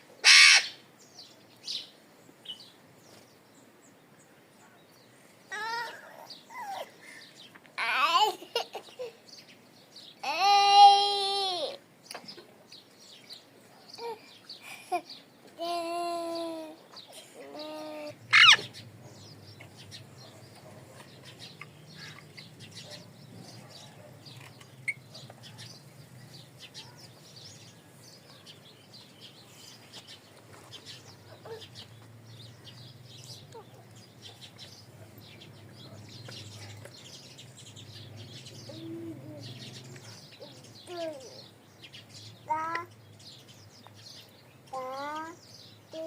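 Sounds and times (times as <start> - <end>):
loud sharp parrot call: 0.2 - 0.8, 18.3 - 18.8
parrots chirping and chattering: 0.2 - 0.8, 14.0 - 46.0.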